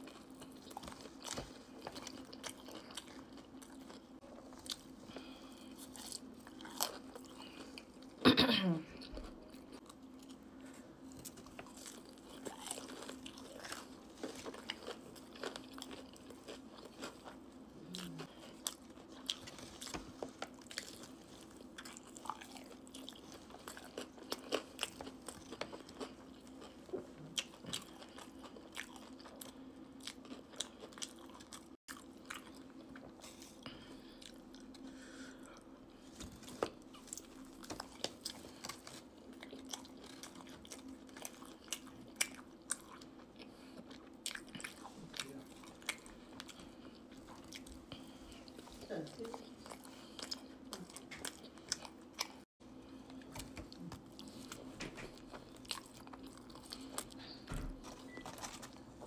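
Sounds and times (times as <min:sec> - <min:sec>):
chewing crunches: 0:00.0 - 0:08.2, 0:09.0 - 0:58.8
wet smacking chews: 0:49.4 - 0:58.8.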